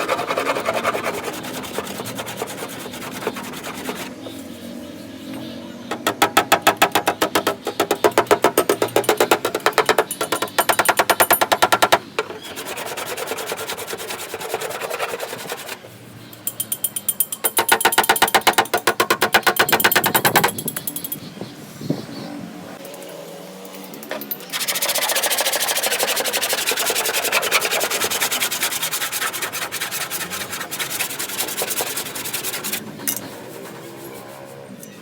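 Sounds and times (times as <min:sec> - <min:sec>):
power tool striking car metal: 0:05.9 - 0:12.2.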